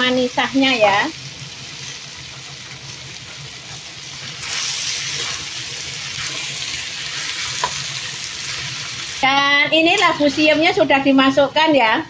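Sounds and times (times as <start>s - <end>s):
vegetables sizzling in hot oil: 0.0s - 11.8s
spatula stirring in wok: 1.4s - 10.8s.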